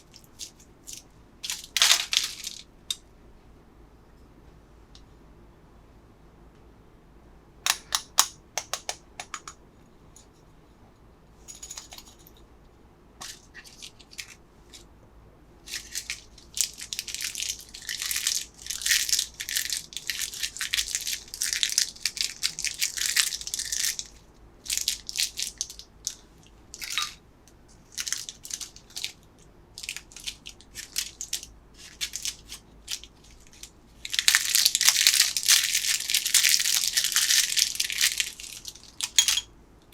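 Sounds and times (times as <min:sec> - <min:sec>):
plastic wrappers crinkling: 0:01.4 - 0:02.6, 0:15.7 - 0:24.1, 0:29.8 - 0:39.4
sharp clicks: 0:07.7 - 0:09.5.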